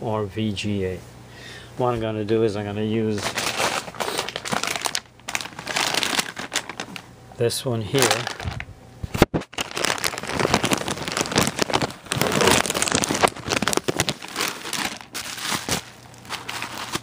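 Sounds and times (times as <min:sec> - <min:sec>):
plastic packaging crinkling: 0:03.2 - 0:07.1, 0:07.9 - 0:17.0.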